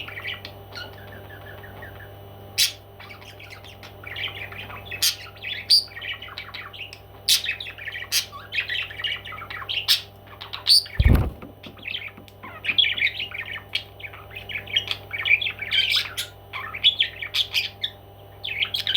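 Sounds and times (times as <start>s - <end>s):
dull thump: 11.0s - 11.6s.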